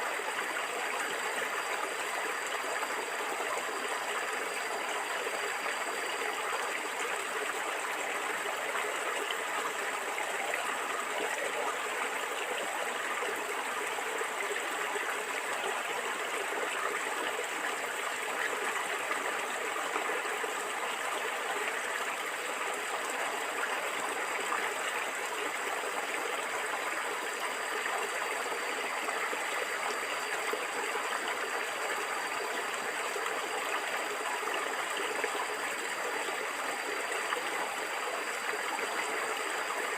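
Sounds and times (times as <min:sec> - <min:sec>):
stream of water gurgling: 0:00.0 - 0:39.9.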